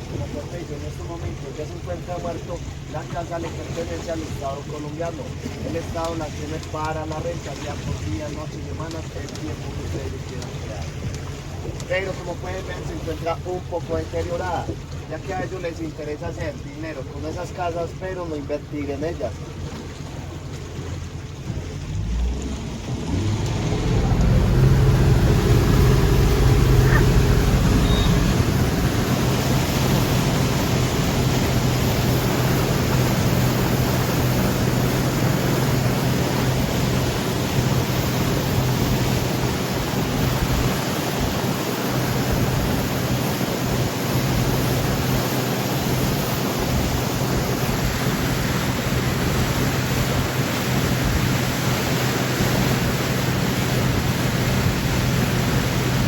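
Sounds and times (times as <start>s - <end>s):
motorboat engine humming: 0.0s - 56.0s
wind noise on microphone: 22.1s - 56.0s.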